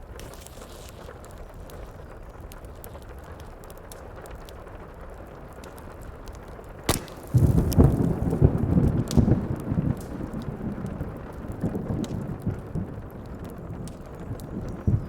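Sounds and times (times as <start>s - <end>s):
fireplace crackling: 0.0s - 15.0s
heavy rain: 1.1s - 15.0s
thunderclap and rolling thunder: 6.9s - 15.0s.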